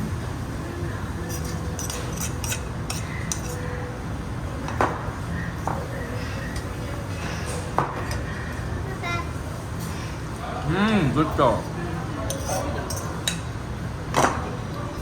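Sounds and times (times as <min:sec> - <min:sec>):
low background hum: 0:00.0 - 0:15.0
tableware clinking: 0:01.3 - 0:03.6, 0:12.3 - 0:13.5.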